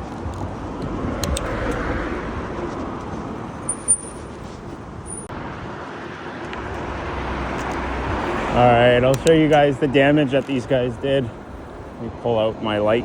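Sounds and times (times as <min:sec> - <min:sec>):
car passing: 0:00.4 - 0:10.3.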